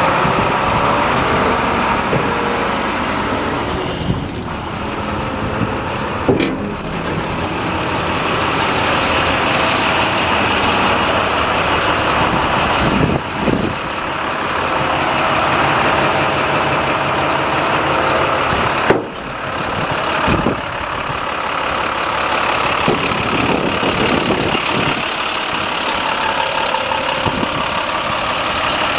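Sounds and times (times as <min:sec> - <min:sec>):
diesel truck engine running: 0:00.0 - 0:28.9
knocks and clunks: 0:04.0 - 0:08.2, 0:18.6 - 0:19.3.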